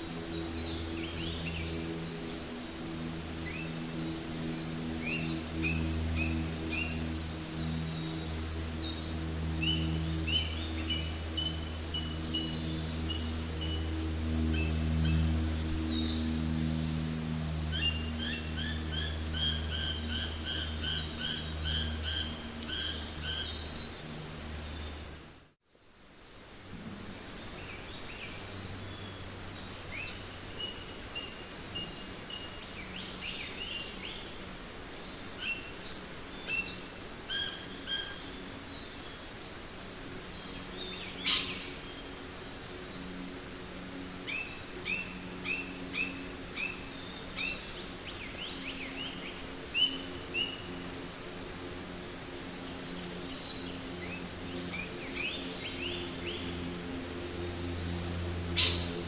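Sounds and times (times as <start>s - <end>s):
steady background hiss: 0.0s - 59.0s
birds chirping and calling: 40.3s - 41.9s, 57.8s - 59.0s.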